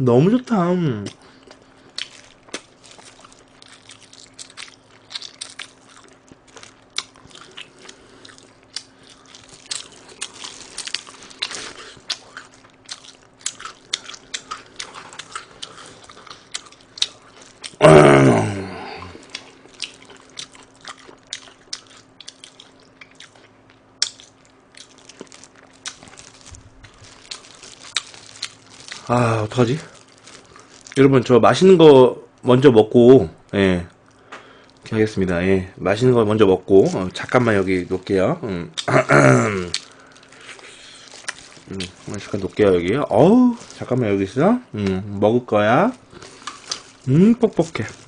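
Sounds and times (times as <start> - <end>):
chewing with wet mouth clicks: 1.0 - 17.8, 19.2 - 29.1, 39.7 - 42.3
short falling vocal sound: 17.8 - 19.2.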